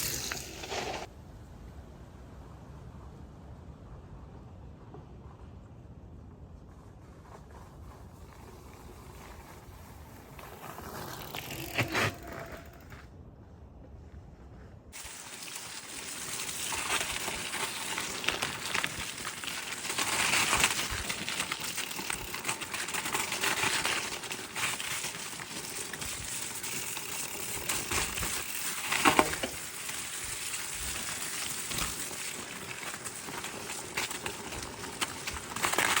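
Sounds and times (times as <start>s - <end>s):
bike tyres rolling over gravel: 0.0s - 1.1s, 7.6s - 13.1s, 15.0s - 36.0s.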